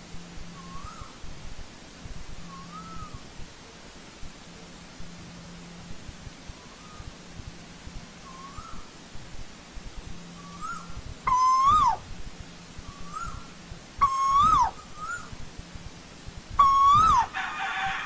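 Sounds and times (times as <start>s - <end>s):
koel calling: 10.6s - 12.0s, 14.0s - 15.3s, 16.6s - 17.4s.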